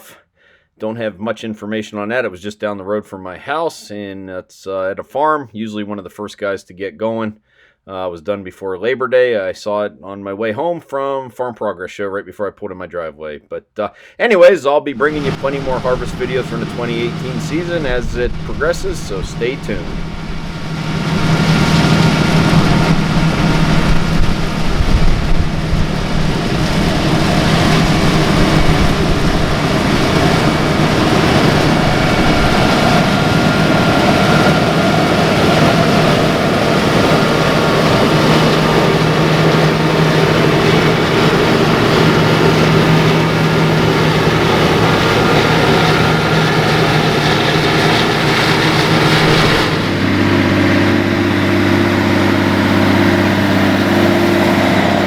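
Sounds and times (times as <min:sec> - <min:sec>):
diesel engine under load: 0:15.0 - 0:55.0
steady machine engine hum: 0:15.0 - 0:55.0.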